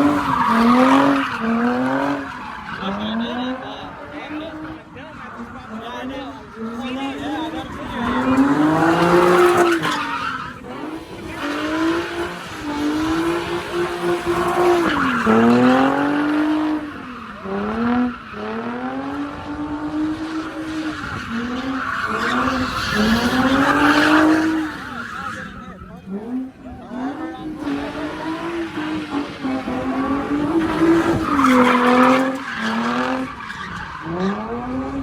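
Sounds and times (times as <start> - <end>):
car engine revving hard: 0.0 - 35.0
tires squealing and skidding: 0.0 - 35.0.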